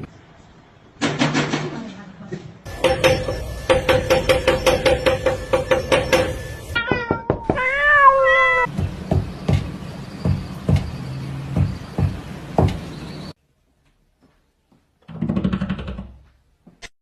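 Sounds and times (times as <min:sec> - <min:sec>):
irregular knocks: 0:02.7 - 0:07.6, 0:08.7 - 0:12.9
cat meowing: 0:06.7 - 0:08.7.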